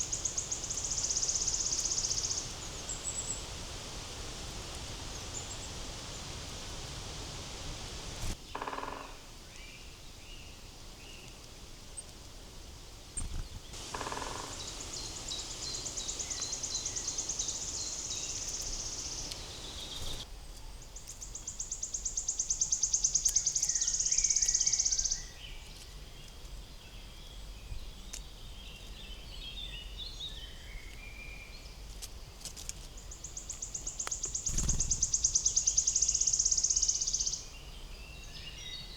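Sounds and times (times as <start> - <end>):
insect buzzing trills: 0.0 - 9.0, 13.2 - 20.2, 34.1 - 37.2
faint bird chirps: 13.2 - 31.7, 33.0 - 38.9.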